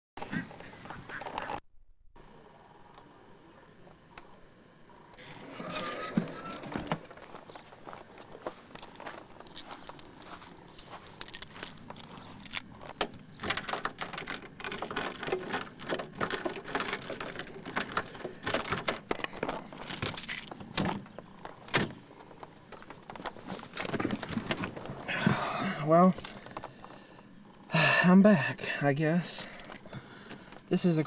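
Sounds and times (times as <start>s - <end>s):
clicks and rustles: 6.4s - 25.4s, 26.1s - 27.7s
keys jangling: 9.4s - 12.7s, 13.4s - 20.6s, 29.3s - 29.9s.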